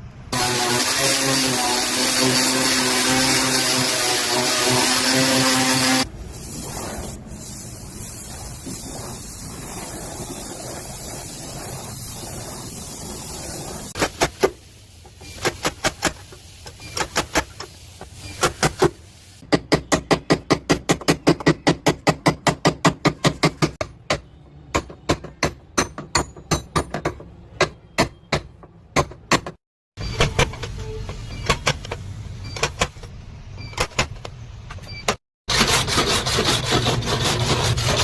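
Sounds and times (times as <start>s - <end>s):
steady hiss: 6.2s - 19.4s.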